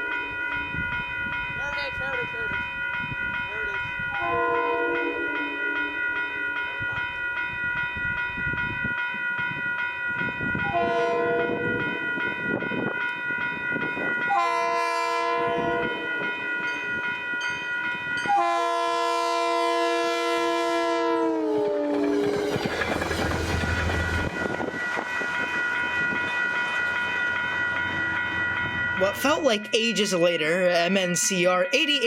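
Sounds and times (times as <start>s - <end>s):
train horn blasts: 4.1s - 6.0s, 10.6s - 11.9s, 14.3s - 16.2s, 18.2s - 22.6s
high ringing with fast tick: 15.8s - 18.4s, 22.0s - 32.0s.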